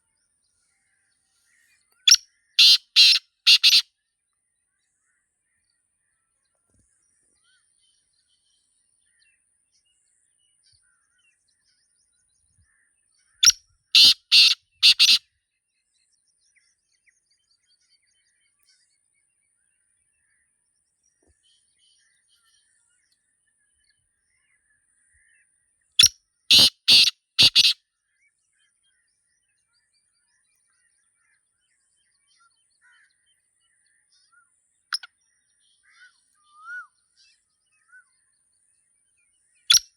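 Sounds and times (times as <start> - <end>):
small birds chirping: 1.0 - 3.8, 13.3 - 15.2, 26.0 - 27.8, 28.4 - 38.6, 39.2 - 39.9
francolin harsh call: 2.1 - 3.8, 14.0 - 15.2, 26.5 - 27.8.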